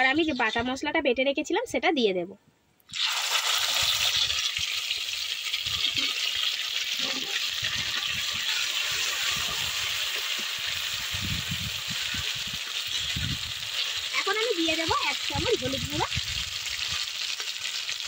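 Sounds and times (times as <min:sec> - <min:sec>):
spice paste sizzling in oil: 0:00.0 - 0:00.9, 0:02.9 - 0:18.0
metal spatula scraping pan: 0:05.8 - 0:10.9, 0:11.9 - 0:14.1.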